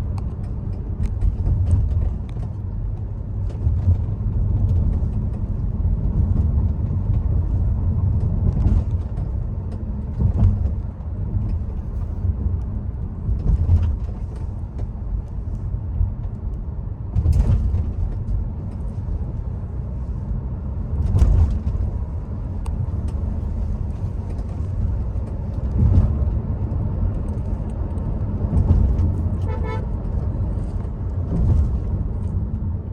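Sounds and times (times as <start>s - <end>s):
low rumble of tyres and engine: 0.0s - 32.9s
pulsing horn-like tone: 29.5s - 29.9s.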